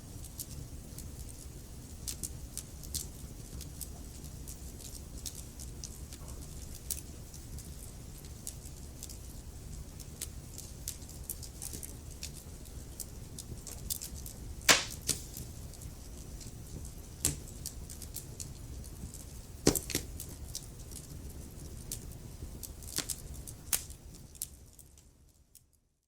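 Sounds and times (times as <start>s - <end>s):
fire crackling: 0.1s - 25.1s
low rumble of flames: 0.1s - 25.2s
sharp wood pops: 14.7s - 15.4s.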